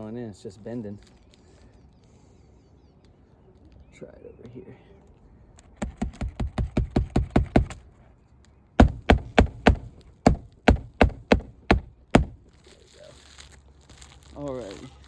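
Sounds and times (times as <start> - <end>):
hammer tapping a roofing nail: 5.8 - 7.8, 8.8 - 12.5.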